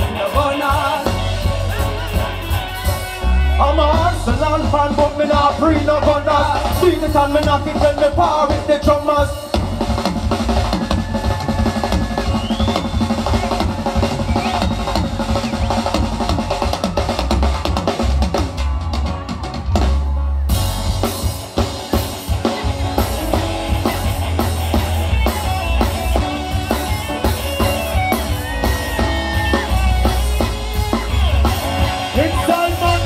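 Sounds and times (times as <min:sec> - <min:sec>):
drum kit: 0:00.0 - 0:33.0
heavy bass line: 0:00.0 - 0:33.0
reggae band playing: 0:00.0 - 0:33.0.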